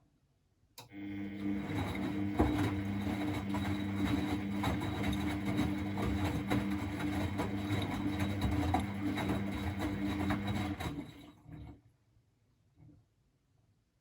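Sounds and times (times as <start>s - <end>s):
washing machine motor humming: 0.8s - 11.8s.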